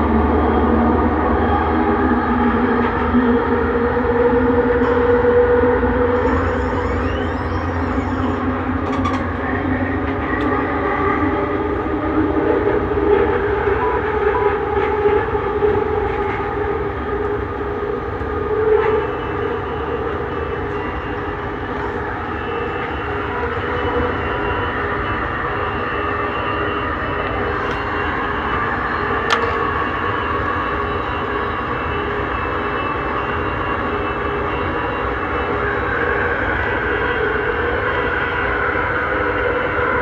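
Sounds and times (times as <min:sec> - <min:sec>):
train wheels rumbling on rail: 0:00.0 - 0:40.0
faint high whine: 0:06.0 - 0:09.8, 0:11.4 - 0:35.8
train bump: 0:11.6 - 0:32.8.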